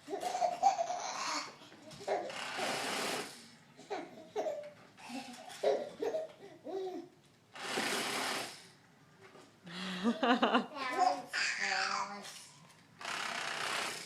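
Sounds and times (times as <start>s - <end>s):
baby laughing: 0.0s - 2.4s, 3.8s - 7.1s.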